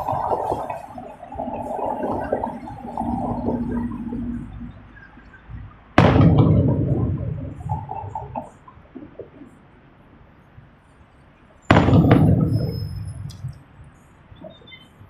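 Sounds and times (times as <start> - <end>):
firework bang with echo: 6.0 - 7.8, 11.7 - 13.3.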